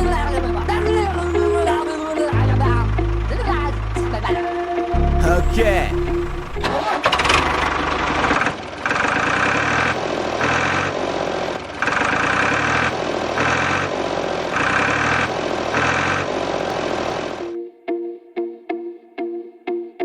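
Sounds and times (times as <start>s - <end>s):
small tractor engine chugging: 6.2s - 17.4s.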